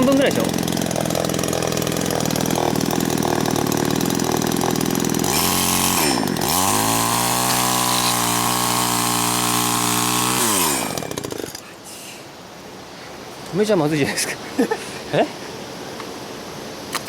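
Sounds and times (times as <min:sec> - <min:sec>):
chainsaw cutting wood: 0:00.0 - 0:11.7.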